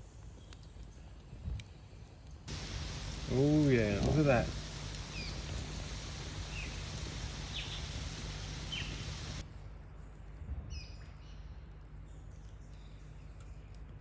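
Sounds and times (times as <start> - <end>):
birds chirping: 2.5 - 9.4
high quick bird calls: 2.5 - 9.4
steady outdoor hiss: 2.5 - 9.4.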